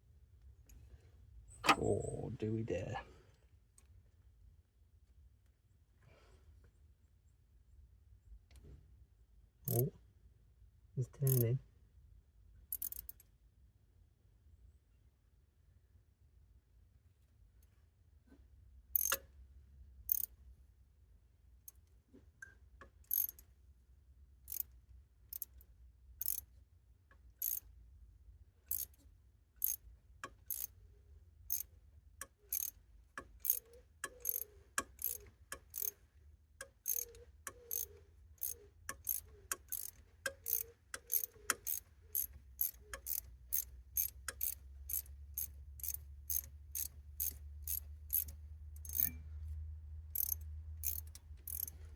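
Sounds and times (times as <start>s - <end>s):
ratchet wrench clicking: 12.7s - 13.3s, 18.9s - 19.4s, 20.1s - 20.4s, 23.0s - 23.5s, 24.5s - 26.5s, 27.4s - 27.7s, 28.7s - 29.0s, 29.6s - 30.8s, 31.5s - 36.0s, 36.6s - 49.2s, 50.1s - 51.9s.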